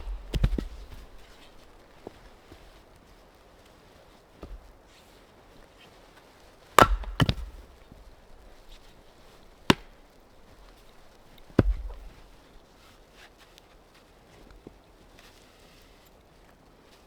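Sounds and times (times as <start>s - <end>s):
wood being chopped: 0.0s - 2.2s, 4.4s - 4.7s, 6.7s - 12.4s.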